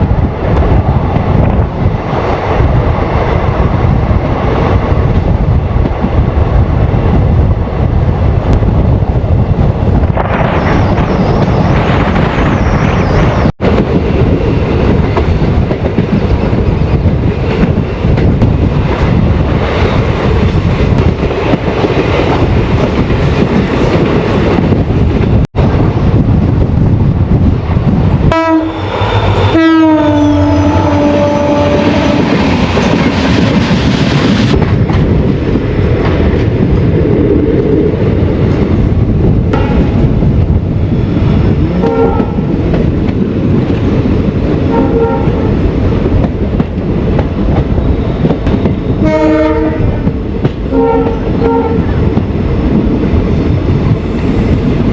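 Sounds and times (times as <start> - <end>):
train wheel and wind noise: 0.0 - 54.9
short horn-like tones: 28.3 - 32.2
train horn with falling pitch: 28.3 - 32.3, 41.6 - 42.4, 44.7 - 45.4, 49.0 - 50.0, 50.7 - 51.9.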